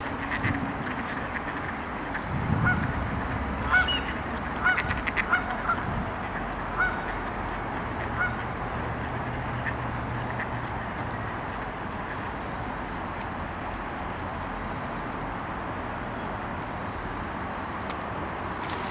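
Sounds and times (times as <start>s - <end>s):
waterfowl calling: 3.6s - 7.3s, 8.0s - 8.6s.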